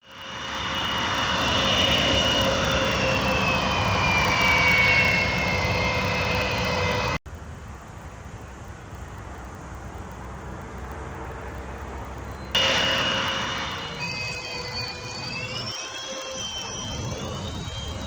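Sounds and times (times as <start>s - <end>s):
jet engines whining: 0.0s - 7.2s, 12.6s - 18.0s.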